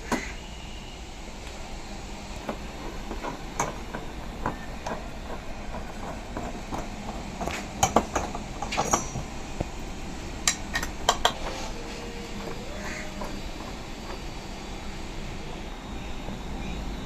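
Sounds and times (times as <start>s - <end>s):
steady low hum: 0.0s - 17.0s
metal tools clinking: 8.7s - 9.3s.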